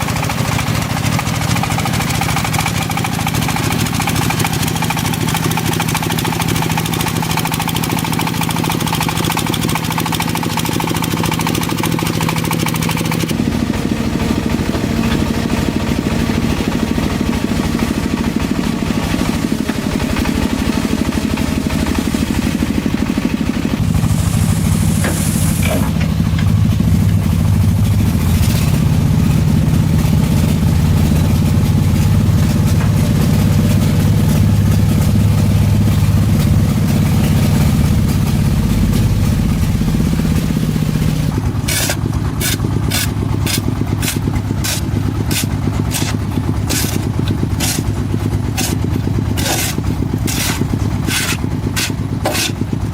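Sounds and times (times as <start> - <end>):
machine engine running: 0.0 - 52.9
sharp rhythmic strokes: 41.6 - 52.6.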